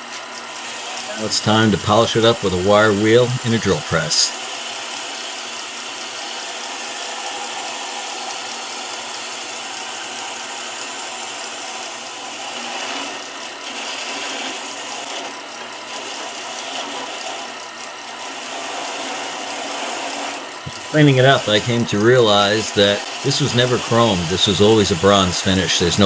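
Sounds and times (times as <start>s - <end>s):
wire wheel brushing metal: 0.0s - 5.2s, 11.8s - 26.0s
drill press hum: 0.0s - 26.0s.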